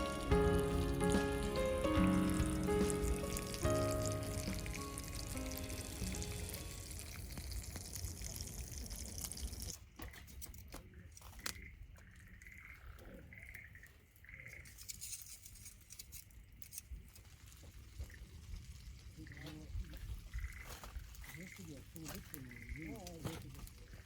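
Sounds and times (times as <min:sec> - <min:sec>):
food sizzling in a pan: 0:00.0 - 0:09.8.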